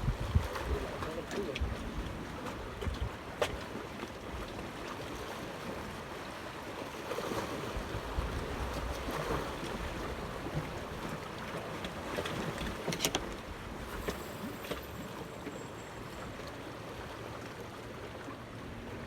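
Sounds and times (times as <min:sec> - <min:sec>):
wind on microphone: 0:00.0 - 0:00.9.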